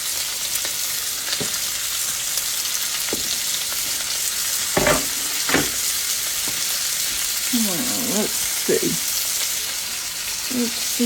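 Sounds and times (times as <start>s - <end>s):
vegetables sizzling in a skillet: 0.0s - 11.0s
short knocks: 4.8s - 5.9s.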